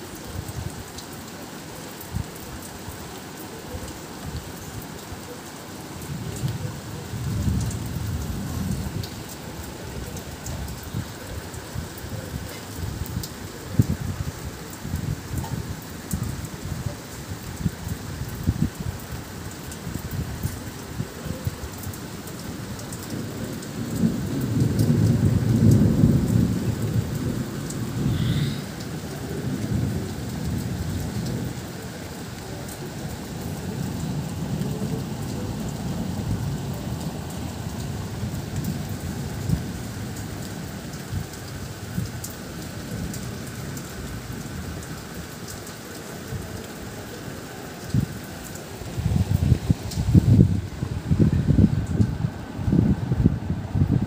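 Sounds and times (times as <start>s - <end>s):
steady rain: 0.0s - 54.0s
low thunder rumble: 6.0s - 15.8s, 23.1s - 31.6s, 48.8s - 54.0s.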